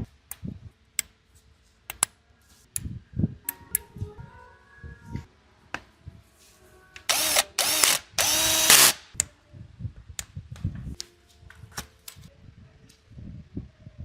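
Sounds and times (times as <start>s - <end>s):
handheld power tool motor: 7.1s - 9.1s.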